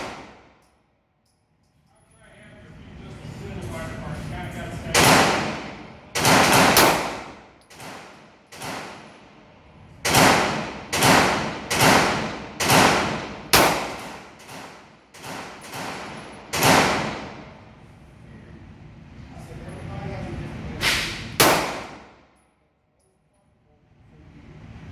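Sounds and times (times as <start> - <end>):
faint gunshots: 0.0 - 0.5, 5.0 - 9.1, 10.1 - 17.5, 20.8 - 22.2
pistol shots with echoing tail: 0.0 - 0.5, 4.9 - 9.1, 10.0 - 17.5, 20.8 - 22.2.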